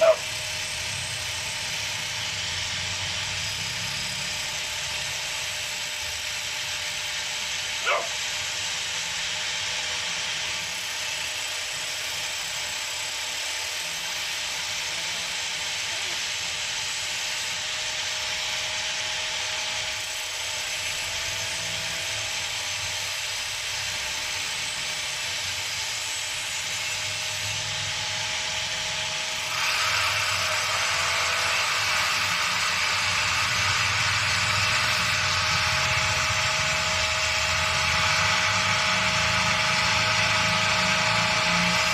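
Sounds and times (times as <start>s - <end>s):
angle grinder whine: 0.0s - 41.9s
disc grinding knife blade: 20.1s - 41.9s.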